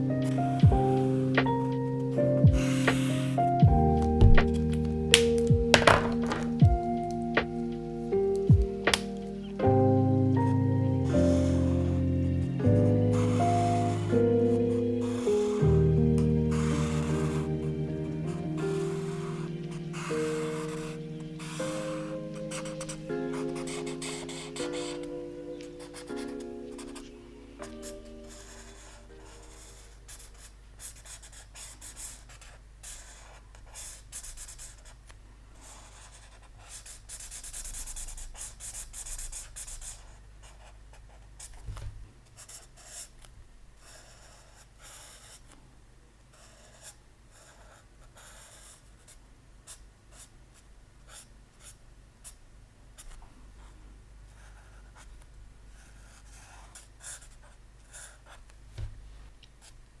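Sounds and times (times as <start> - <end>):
pen scratching on paper: 2.6 - 3.4, 4.0 - 6.5, 11.2 - 12.5, 13.1 - 17.7, 18.4 - 35.0, 35.6 - 41.8, 42.4 - 43.2, 43.8 - 45.5, 46.3 - 50.3, 54.3 - 55.1, 55.8 - 58.4
soft knock: 3.6 - 4.6, 5.2 - 6.8, 58.8 - 59.0.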